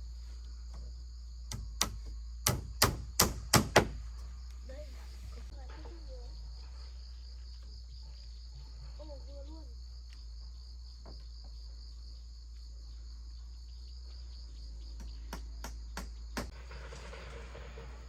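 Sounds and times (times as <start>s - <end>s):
insects chirring: 0.0s - 18.0s
sharp knocks: 1.5s - 4.1s.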